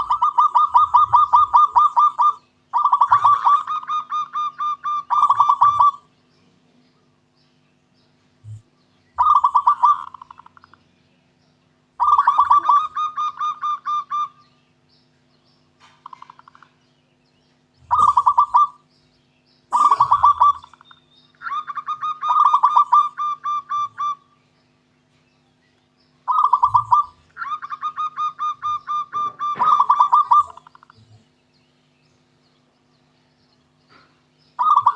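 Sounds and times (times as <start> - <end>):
dove cooing: 0.0 - 6.7, 8.4 - 10.8, 12.0 - 14.4, 15.8 - 16.8, 17.8 - 18.8, 19.7 - 24.4, 26.2 - 31.4, 33.9 - 34.9.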